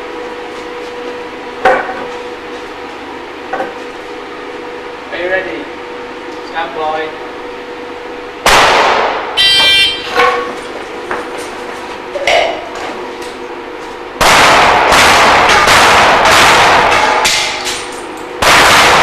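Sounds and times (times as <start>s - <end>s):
pistol shots: 8.4s - 9.4s, 14.2s - 19.0s.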